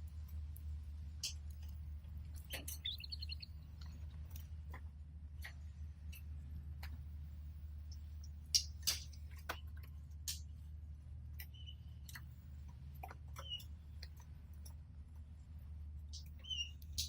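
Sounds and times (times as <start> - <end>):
steady low hum: 0.0 - 17.0
canary chirps: 2.3 - 4.0, 11.4 - 12.2, 13.0 - 14.0, 16.1 - 17.0
small clicks and taps: 3.7 - 10.7, 11.3 - 14.8.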